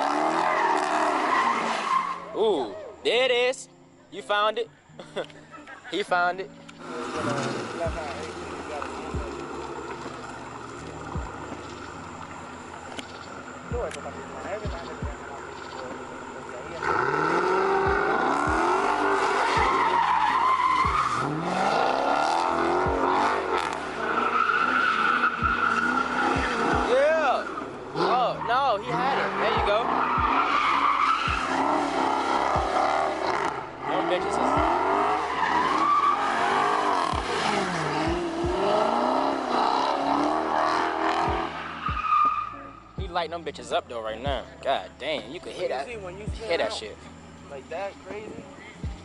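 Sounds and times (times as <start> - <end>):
car engine revving: 0.0 - 2.5, 6.5 - 49.0
tires squealing: 0.0 - 3.4, 5.7 - 49.0.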